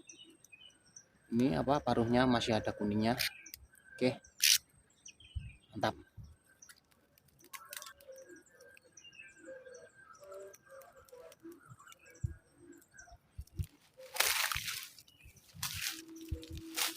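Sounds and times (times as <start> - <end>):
small birds chirping: 0.0 - 16.9
rustling and handling noise: 13.4 - 16.9.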